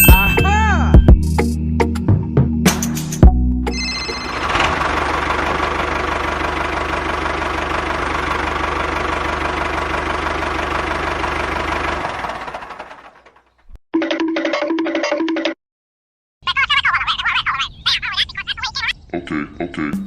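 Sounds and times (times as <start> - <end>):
engine knocking at idle: 4.4 - 13.5.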